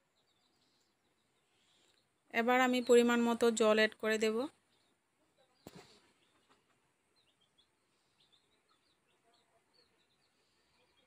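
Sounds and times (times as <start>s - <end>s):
faint high bird chirps: 4.5s - 11.0s.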